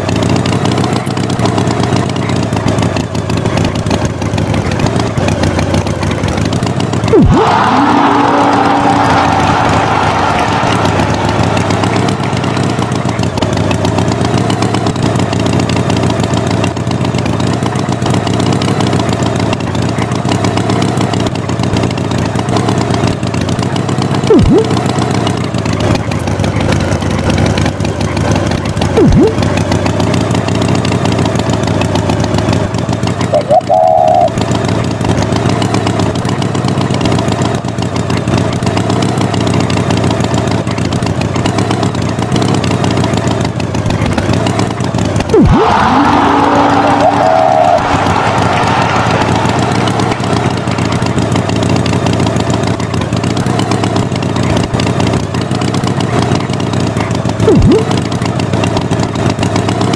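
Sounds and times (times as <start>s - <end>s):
tractor engine running: 0.0s - 59.9s
sharp chirps: 24.3s - 24.7s, 33.3s - 34.4s, 57.4s - 58.0s
short higher tone: 33.4s - 34.4s, 57.4s - 57.9s.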